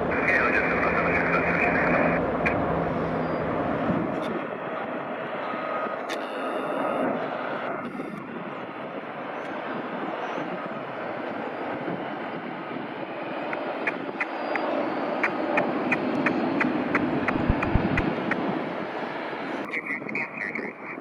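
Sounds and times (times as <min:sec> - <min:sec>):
jet engine noise: 0:00.0 - 0:21.0
sharp high ticks: 0:13.5 - 0:18.2.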